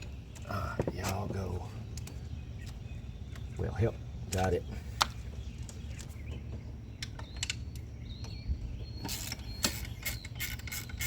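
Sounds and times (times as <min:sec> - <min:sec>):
steady low hum: 0:00.0 - 0:11.0
sharp clicks of engine parts: 0:01.9 - 0:03.5, 0:04.3 - 0:06.1, 0:07.0 - 0:08.4
squeaky creak of parts: 0:05.6 - 0:11.0.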